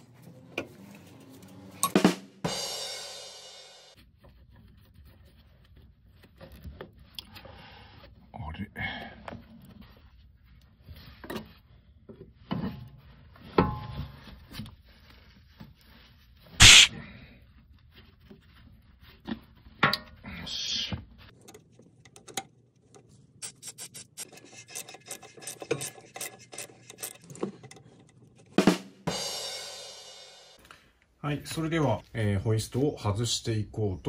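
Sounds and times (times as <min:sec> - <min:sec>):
hand tools clicking and scraping: 0:16.6 - 0:16.9, 0:21.3 - 0:28.6.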